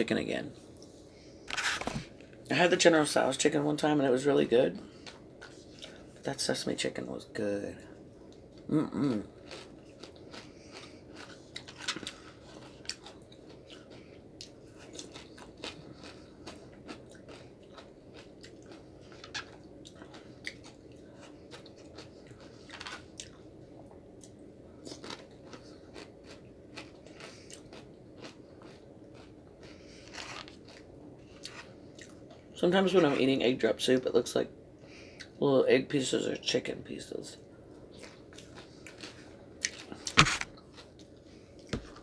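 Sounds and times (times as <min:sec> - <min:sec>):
person chewing food: 0:08.3 - 0:32.4, 0:38.0 - 0:42.0.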